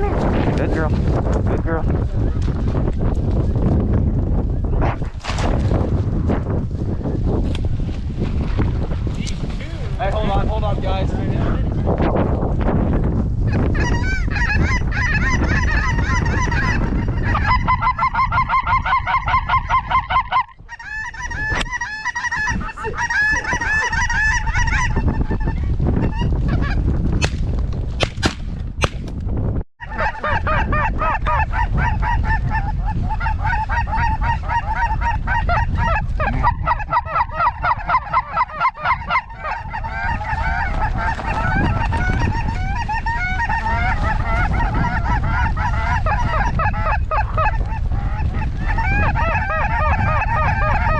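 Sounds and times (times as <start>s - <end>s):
wind rumbling on microphone: 0.0s - 50.9s
geese calling and honking: 13.4s - 26.8s, 29.8s - 50.9s.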